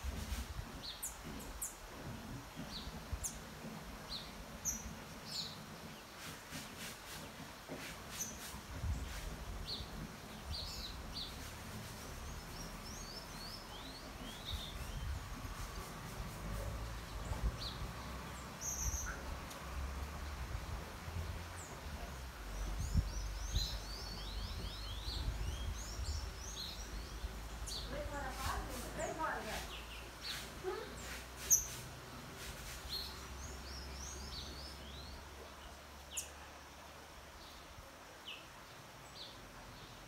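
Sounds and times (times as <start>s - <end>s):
birds chirping: 0.1s - 15.9s, 16.5s - 40.0s.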